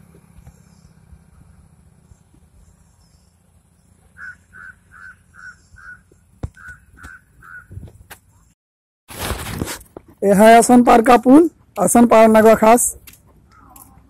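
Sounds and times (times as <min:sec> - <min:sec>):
faint higher chirps: 0:00.5 - 0:07.7
bird calling short notes: 0:04.1 - 0:07.8.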